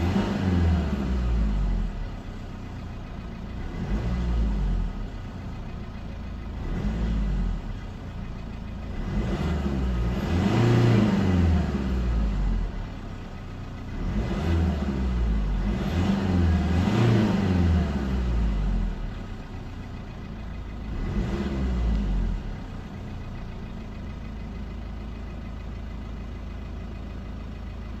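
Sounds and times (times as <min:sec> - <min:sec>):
diesel engine revving: 0:00.0 - 0:28.0.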